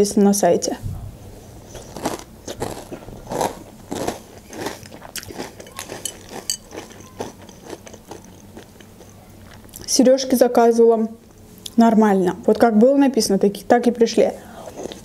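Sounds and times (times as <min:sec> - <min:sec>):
chewing crunchy cereal: 0:01.6 - 0:09.9, 0:14.5 - 0:15.0.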